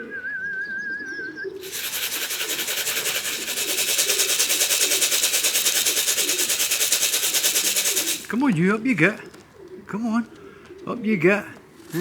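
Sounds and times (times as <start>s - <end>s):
tin of feed rattling: 1.6s - 8.6s.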